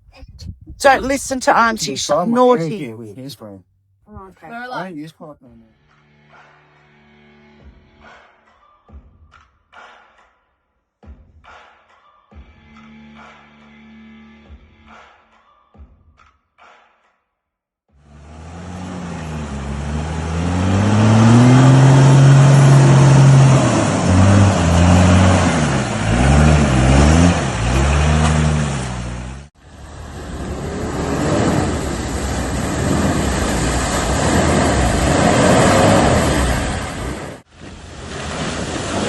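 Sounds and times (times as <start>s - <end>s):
vehicle engine revving: 18.1s - 29.5s.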